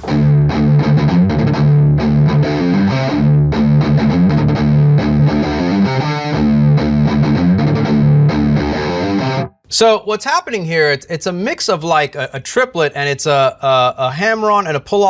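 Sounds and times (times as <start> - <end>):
distorted electric guitar riff: 0.0 - 9.6.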